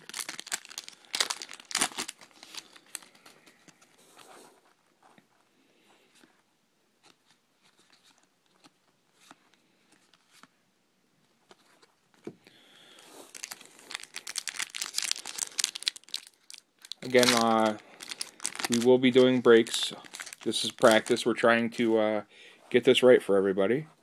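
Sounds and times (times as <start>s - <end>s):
card pack wrapper tearing: 0.0s - 3.4s, 13.3s - 21.3s
cards ticking: 13.3s - 21.3s.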